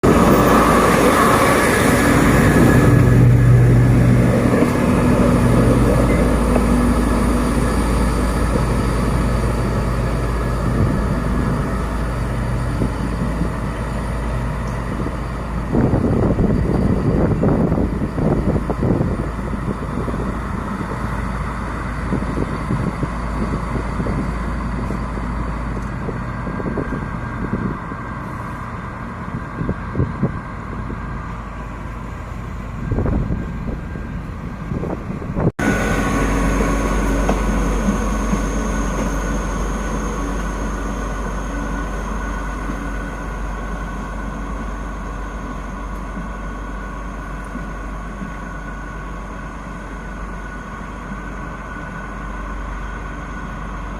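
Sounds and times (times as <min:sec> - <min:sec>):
diesel locomotive engine drone: 0:00.0 - 0:53.9
high whine: 0:31.5 - 0:53.9.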